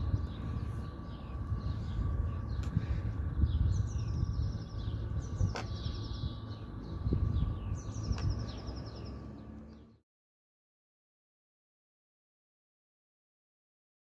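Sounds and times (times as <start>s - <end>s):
small songbird singing: 0.0s - 10.0s
steady low rumble: 0.0s - 10.0s.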